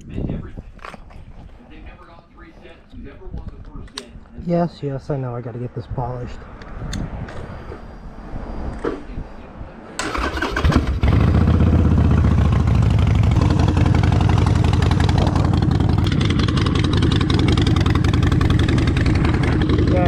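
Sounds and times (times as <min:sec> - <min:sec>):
motorcycle engine cranking and idling: 0:10.0 - 0:20.0.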